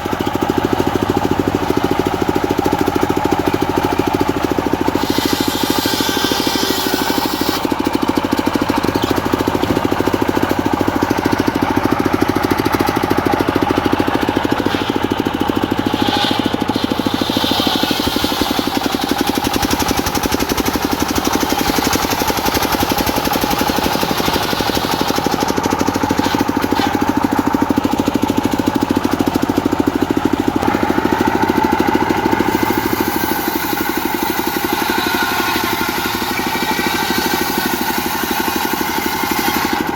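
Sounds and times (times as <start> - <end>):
diesel engine chugging: 0.0 - 39.9
circular saw blade noise: 0.1 - 39.9.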